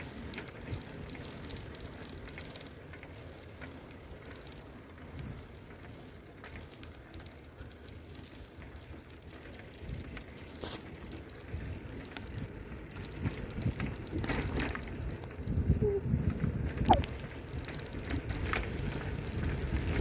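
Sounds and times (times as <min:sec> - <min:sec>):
bicycle rattles and clicks: 0:00.0 - 0:20.0
bicycle tyres rumbling on road: 0:00.0 - 0:20.0.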